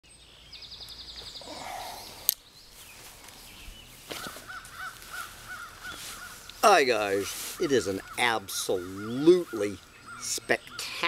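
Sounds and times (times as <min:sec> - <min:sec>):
birds calling: 0:00.1 - 0:11.0.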